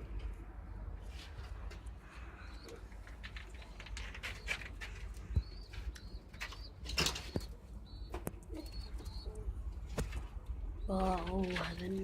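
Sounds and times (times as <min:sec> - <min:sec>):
pigeons cooing: 0:02.2 - 0:12.0.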